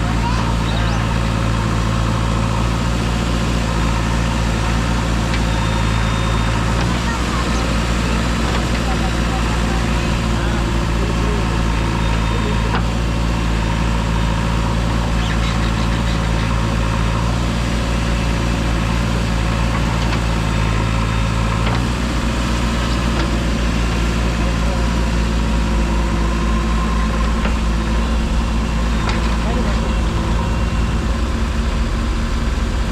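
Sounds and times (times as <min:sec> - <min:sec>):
heavy diesel engine running: 0:00.0 - 0:32.9.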